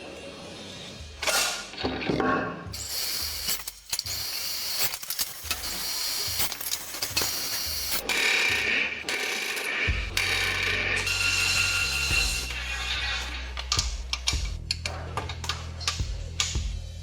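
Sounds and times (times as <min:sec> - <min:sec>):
mechanical rattling and clatter: 0:04.8 - 0:08.2.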